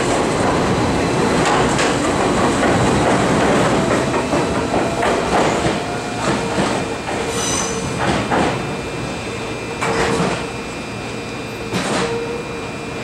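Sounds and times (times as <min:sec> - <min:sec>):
train wheels clattering over rail joints: 0:00.0 - 0:08.6.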